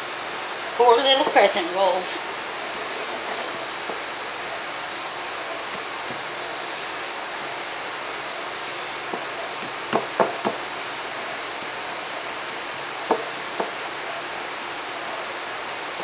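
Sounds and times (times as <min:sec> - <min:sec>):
steady hiss: 0:00.0 - 0:16.0
knocks and taps on hard surface: 0:09.1 - 0:10.6, 0:12.5 - 0:13.8.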